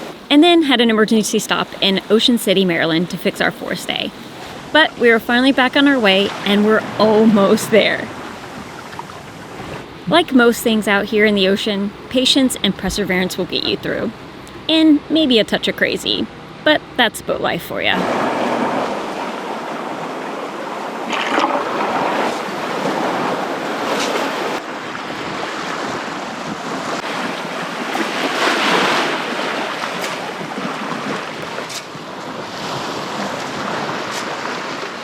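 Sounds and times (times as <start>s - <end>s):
water splashing along hull: 0.0s - 35.0s
wind: 0.0s - 35.0s.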